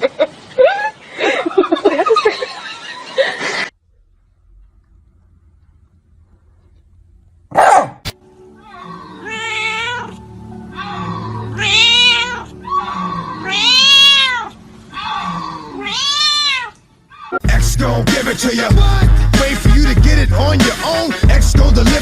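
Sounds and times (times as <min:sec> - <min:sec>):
cat meowing: 0:08.6 - 0:17.4.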